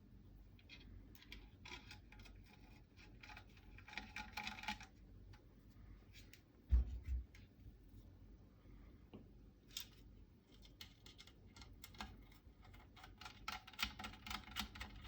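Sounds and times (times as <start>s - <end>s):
dull thump: 6.7s - 7.3s.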